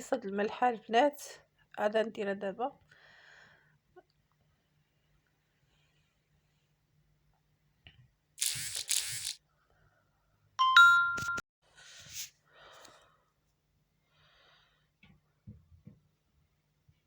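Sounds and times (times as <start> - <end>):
rustling hisses: 8.4 - 9.4
utensil scraping: 8.4 - 9.4.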